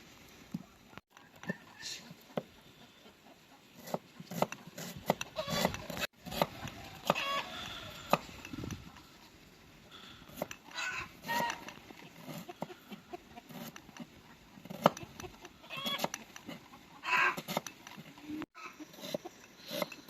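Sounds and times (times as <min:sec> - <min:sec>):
chickens clucking: 0:00.6 - 0:20.0.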